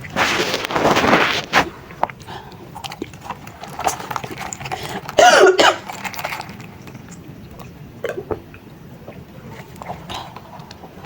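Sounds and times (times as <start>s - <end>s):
mouth noises of eating: 0.0s - 11.0s
person coughing: 5.2s - 5.9s.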